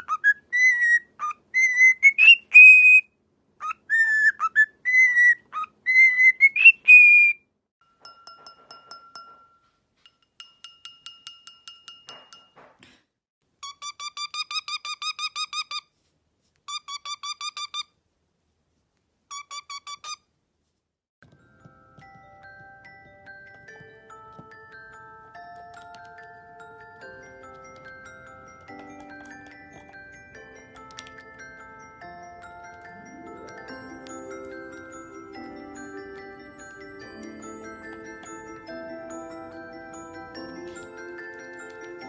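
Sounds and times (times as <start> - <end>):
parrot chirping rapidly: 0.0 - 7.4, 13.6 - 15.9, 16.7 - 18.0, 19.3 - 20.3
parrot whistling: 0.0 - 7.4.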